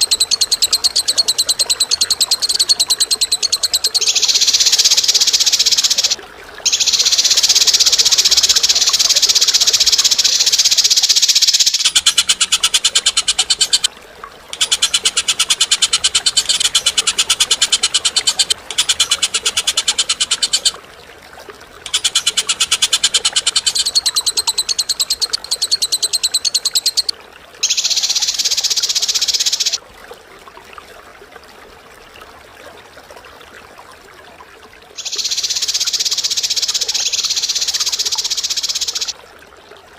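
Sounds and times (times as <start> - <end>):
bird rattling trills: 0.0 - 13.9, 14.6 - 20.8, 21.8 - 29.8, 35.0 - 39.1.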